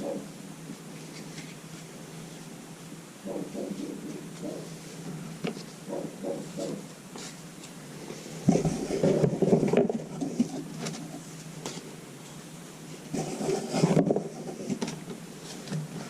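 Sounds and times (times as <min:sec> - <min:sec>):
muffled dogs barking: 0:03.2 - 0:04.8, 0:05.9 - 0:06.9.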